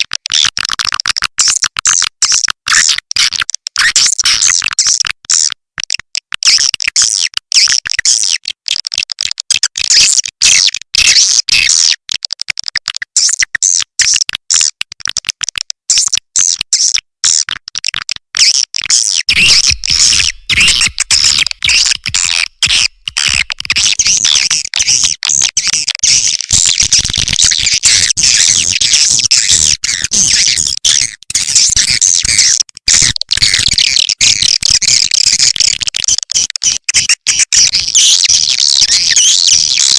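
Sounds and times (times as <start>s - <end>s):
swiftlets twittering: 19.3s - 23.4s.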